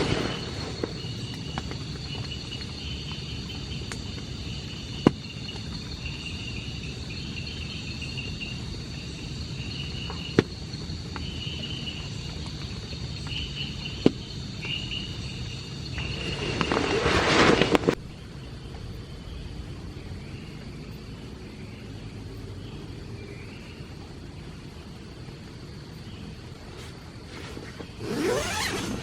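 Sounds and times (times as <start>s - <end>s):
insects trilling: 0.0s - 29.0s
low hiss: 0.0s - 29.0s
noisy rush: 14.4s - 29.0s.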